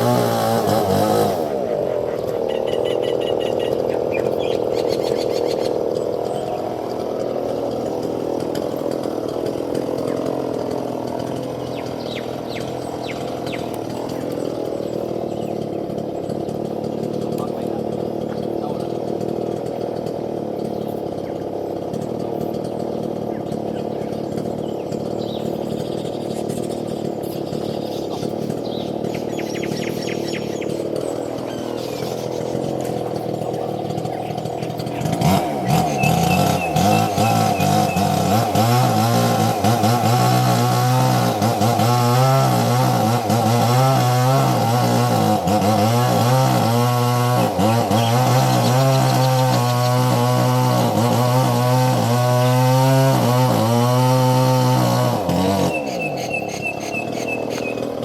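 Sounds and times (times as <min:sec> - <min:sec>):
small engine running: 0:00.0 - 0:58.0
small motor droning: 0:00.0 - 0:58.0
bird gliding call: 0:01.6 - 0:06.6, 0:55.7 - 0:57.9
bird chirping: 0:01.7 - 0:07.6, 0:11.5 - 0:18.9, 0:23.3 - 0:38.4, 0:55.6 - 0:58.0.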